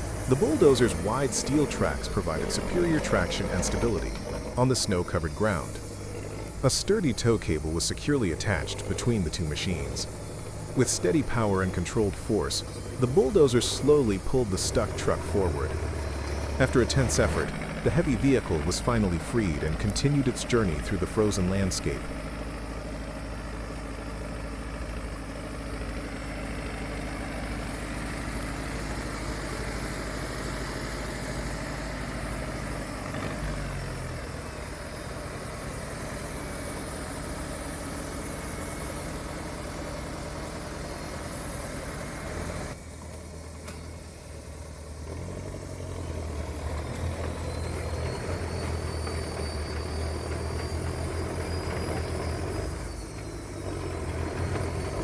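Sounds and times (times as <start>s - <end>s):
faint rising whine: 0.0s - 22.7s
heavy diesel engines running: 0.0s - 55.0s.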